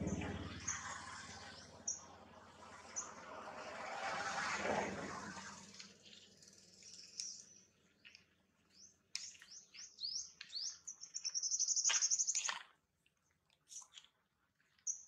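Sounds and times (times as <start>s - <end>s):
small birds chirping: 0.0s - 2.2s, 5.7s - 12.7s, 14.7s - 15.0s.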